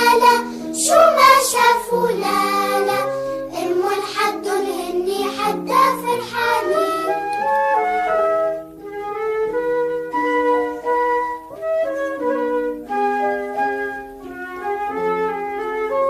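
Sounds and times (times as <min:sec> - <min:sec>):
child singing: 0:00.0 - 0:07.4
instrumental backing music: 0:00.0 - 0:16.0.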